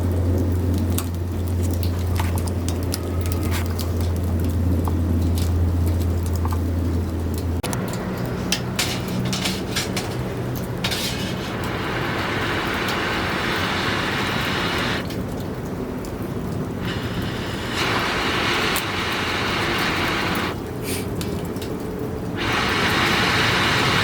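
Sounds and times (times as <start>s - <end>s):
campfire crackling and popping: 0.0s - 24.0s
meat sizzling: 8.3s - 15.0s, 16.8s - 20.6s, 22.4s - 24.0s.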